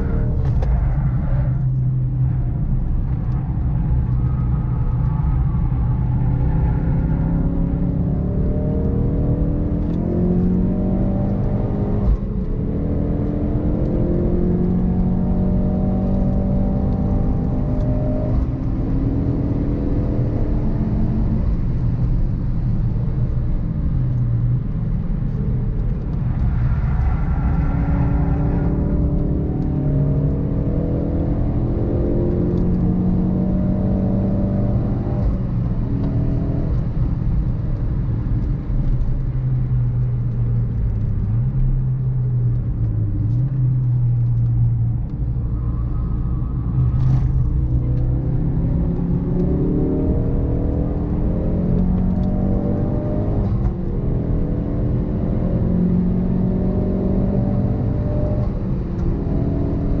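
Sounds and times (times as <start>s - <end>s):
car engine accelerating: 0.0s - 60.0s.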